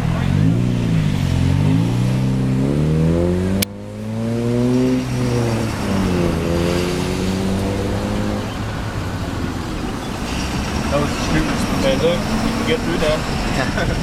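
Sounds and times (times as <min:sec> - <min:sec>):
vehicle engine accelerating: 0:00.0 - 0:14.0.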